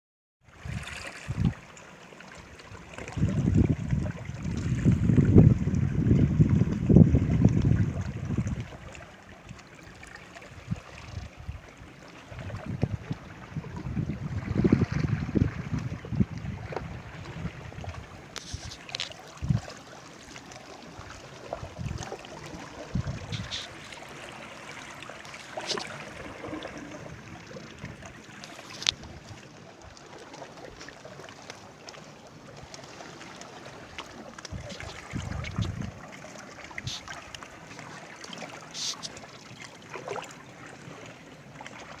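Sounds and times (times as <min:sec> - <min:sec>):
water lapping at shore: 0:00.4 - 0:42.0
small splashes: 0:16.6 - 0:42.0.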